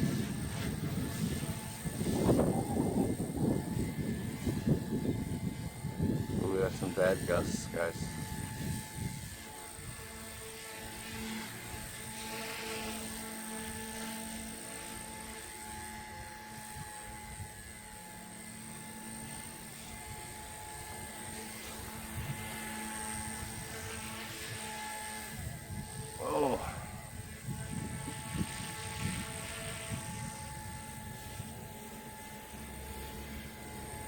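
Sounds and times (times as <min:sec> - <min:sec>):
wind rumbling on microphone: 0:00.0 - 0:12.3, 0:19.8 - 0:32.5
rc helicopter high whine: 0:00.0 - 0:34.0.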